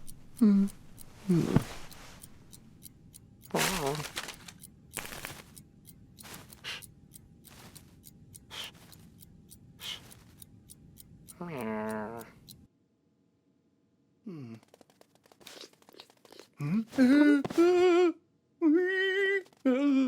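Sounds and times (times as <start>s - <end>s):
faint even ticking: 0.0s - 12.7s.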